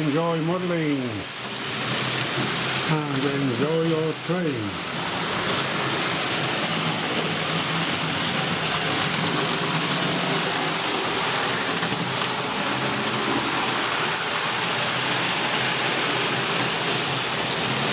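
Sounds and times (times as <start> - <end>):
metal wheels rushing over rails: 4.8 - 17.9.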